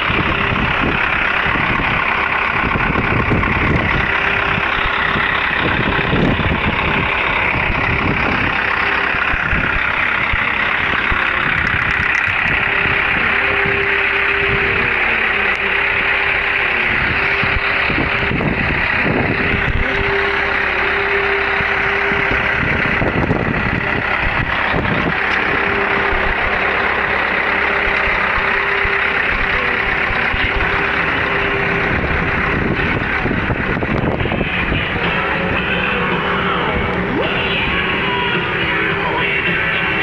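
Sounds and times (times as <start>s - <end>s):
steady whine: 0.0s - 40.0s
truck engine running: 0.0s - 40.0s.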